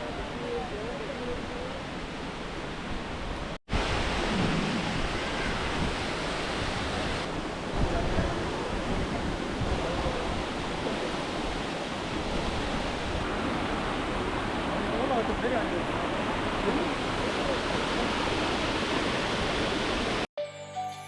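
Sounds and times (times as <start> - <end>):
waterfall roar: 3.8 - 7.4, 12.6 - 20.3.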